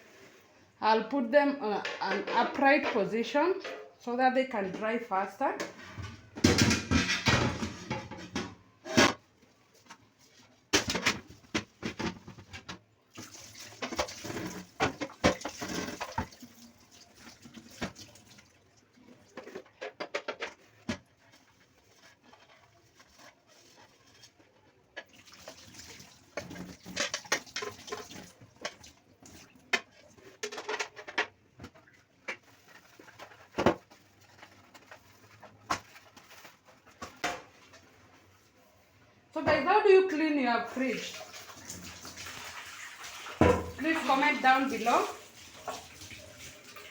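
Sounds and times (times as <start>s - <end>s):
tap water running: 13.1s - 19.5s, 23.7s - 30.1s, 40.6s - 46.9s
plastic pieces knocking and clattering: 29.7s - 37.4s.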